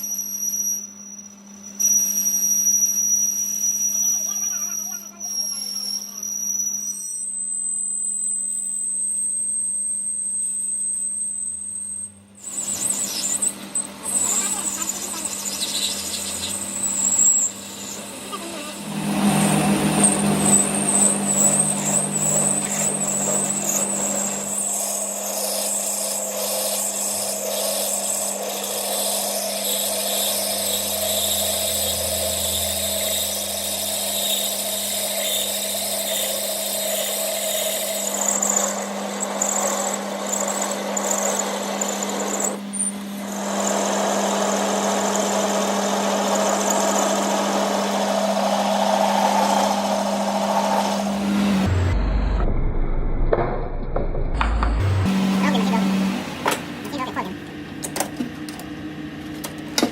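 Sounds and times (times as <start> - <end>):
machine humming: 3.3 - 59.9
rough high-pitched cutting noise: 3.5 - 52.4, 54.3 - 57.5.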